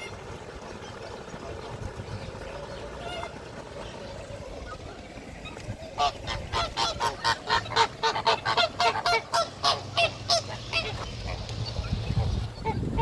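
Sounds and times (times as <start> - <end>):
goose honking: 5.5 - 11.4.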